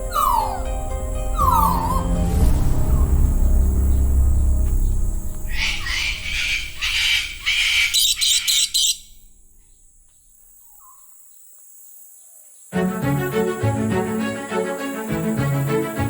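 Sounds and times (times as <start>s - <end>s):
bird screechy calls: 0.0s - 0.7s, 1.4s - 2.2s, 5.5s - 9.8s.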